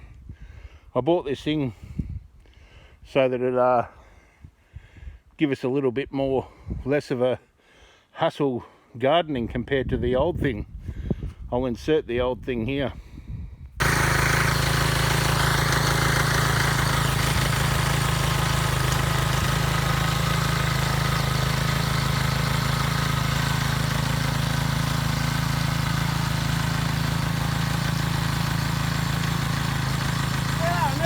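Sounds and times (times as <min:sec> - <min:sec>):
small engine running: 0:13.8 - 0:31.0.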